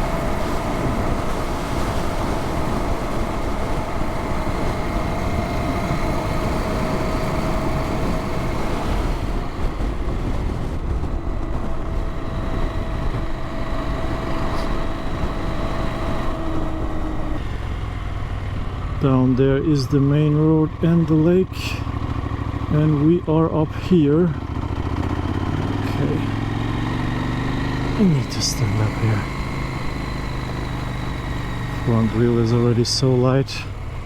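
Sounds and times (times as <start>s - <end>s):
wind noise: 0.0s - 17.5s
motorcycle engine hum: 0.0s - 34.0s
road noise: 0.0s - 34.0s.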